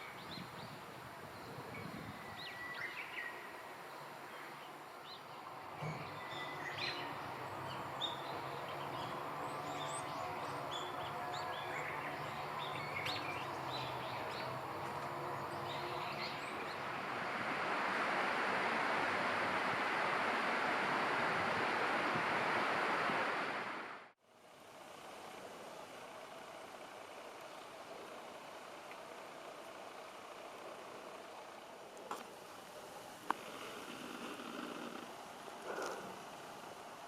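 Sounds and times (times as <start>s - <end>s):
small birds chirping: 0.0s - 17.4s.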